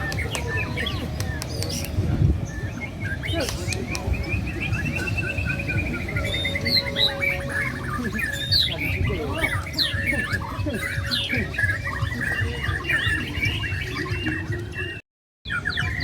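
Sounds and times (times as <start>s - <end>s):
low crowd rumble: 0.0s - 15.0s
many songbirds singing: 0.0s - 16.0s.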